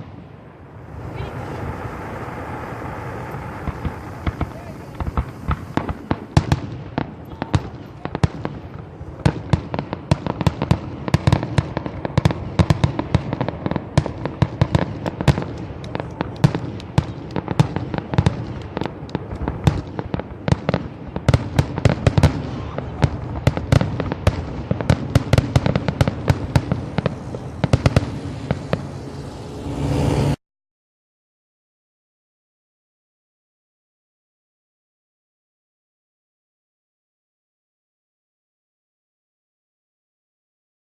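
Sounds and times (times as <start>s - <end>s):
fireworks bangs and cracks: 0.0s - 30.4s.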